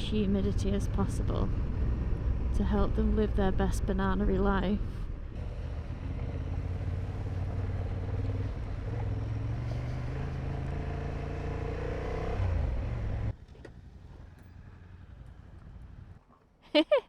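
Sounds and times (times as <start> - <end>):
road and wind noise: 0.0 - 16.6
motorcycle engine accelerating: 5.1 - 16.3.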